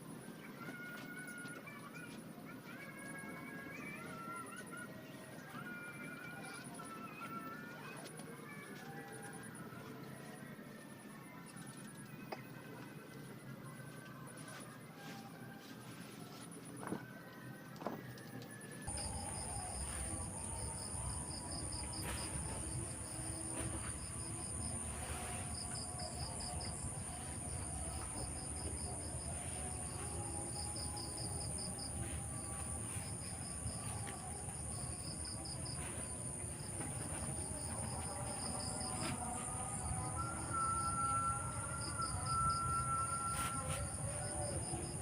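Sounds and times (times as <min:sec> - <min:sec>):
crickets chirping: 0:18.9 - 0:45.0
high-pitched insect trill: 0:18.9 - 0:45.0.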